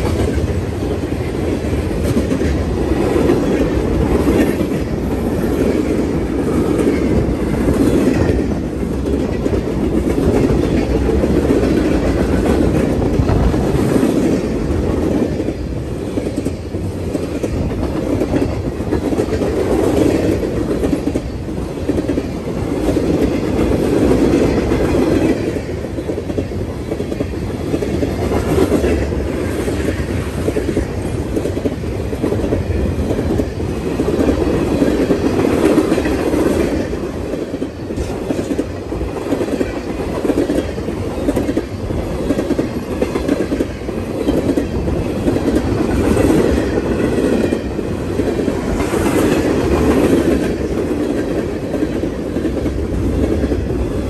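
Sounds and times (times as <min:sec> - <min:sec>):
clacks over rail joints: 0:00.0 - 0:53.7
train wheels rolling on rails: 0:00.0 - 0:54.0.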